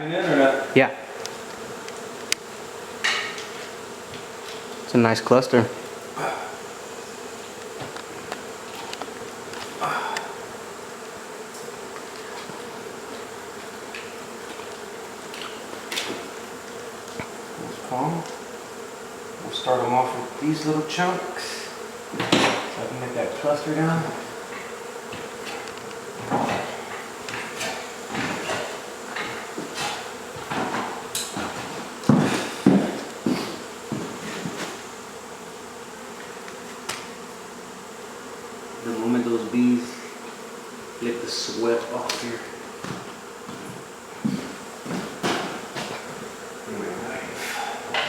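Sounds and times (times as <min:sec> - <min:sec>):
honey bees buzzing: 0:00.0 - 0:48.0
knocks and thumps: 0:22.1 - 0:22.8, 0:24.4 - 0:34.8, 0:42.8 - 0:46.3.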